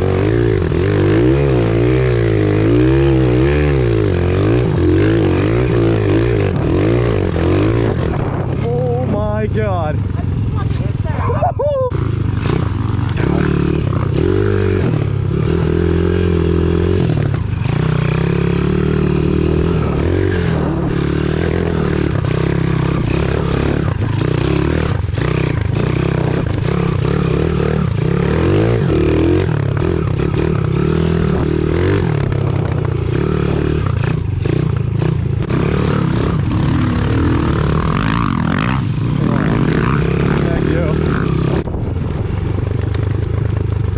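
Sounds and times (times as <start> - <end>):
motorbike engine revving: 0.0 - 43.9.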